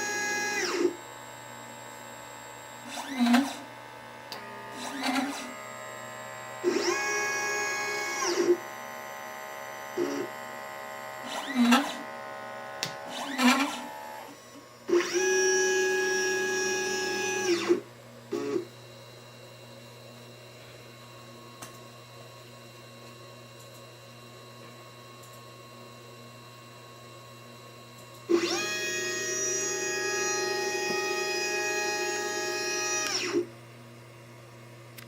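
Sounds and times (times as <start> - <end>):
stepper motors whining: 6.6 - 8.7, 11.2 - 18.6, 28.3 - 33.5.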